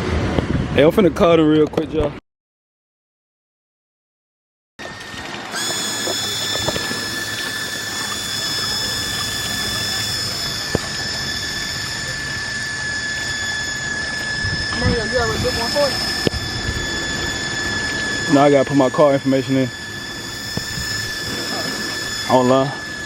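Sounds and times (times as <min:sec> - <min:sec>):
steady rushing noise: 0:00.0 - 0:01.4, 0:05.4 - 0:23.0
high-pitched mechanical whine: 0:04.8 - 0:23.0.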